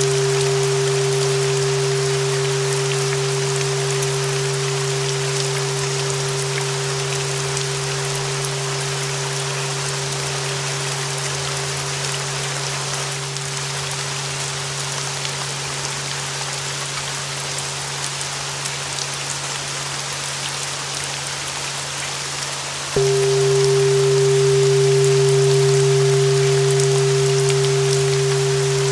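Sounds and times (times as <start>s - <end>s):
low hum: 0.0s - 13.8s, 23.0s - 28.9s
flat bell tone: 0.0s - 14.4s, 23.0s - 28.9s
steady rain: 0.0s - 28.9s.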